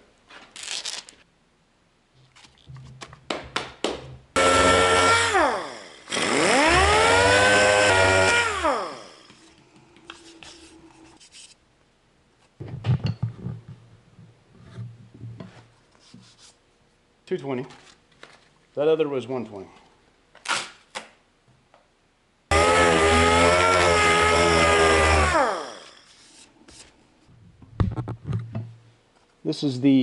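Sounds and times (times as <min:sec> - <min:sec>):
electric sander motor: 0:04.4 - 0:09.4, 0:22.5 - 0:26.1.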